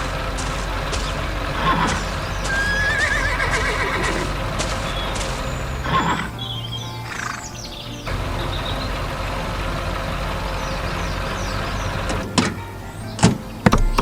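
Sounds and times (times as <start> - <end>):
sharp clacks: 0.0 - 2.9, 4.1 - 5.8
heavy machine engine running: 0.0 - 6.9, 7.5 - 14.0.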